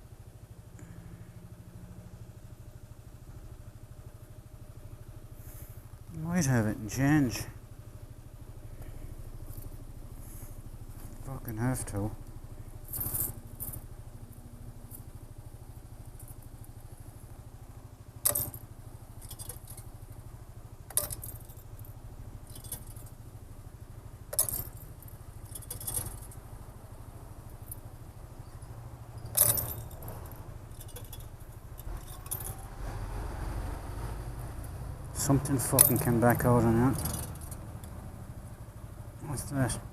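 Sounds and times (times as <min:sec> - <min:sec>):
scooter idling: 0:00.0 - 0:39.9
coins clinking into machine: 0:29.3 - 0:29.9.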